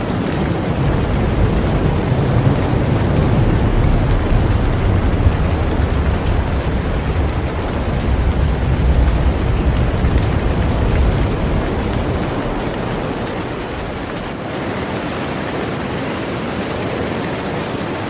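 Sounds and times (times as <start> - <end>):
heavy rain on a boat: 0.0 - 18.0
deep rumble: 0.2 - 14.4.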